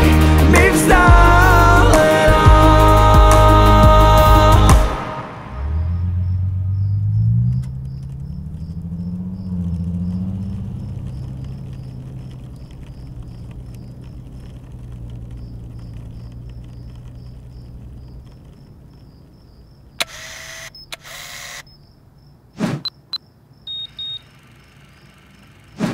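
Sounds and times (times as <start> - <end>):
car engine running: 5.6 - 22.5, 23.4 - 25.9
faint high ticking: 6.2 - 25.8.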